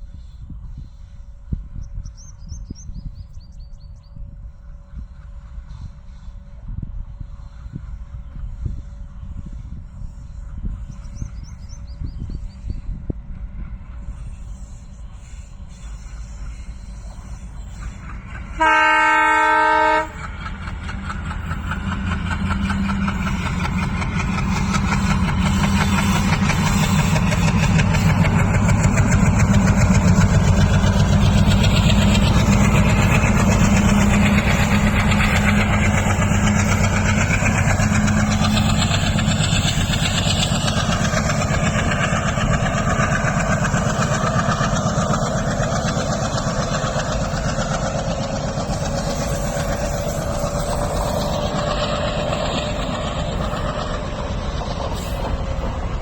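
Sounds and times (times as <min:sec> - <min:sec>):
diesel locomotive engine chugging: 0:00.0 - 0:56.0
locomotive horn blast: 0:18.5 - 0:20.2.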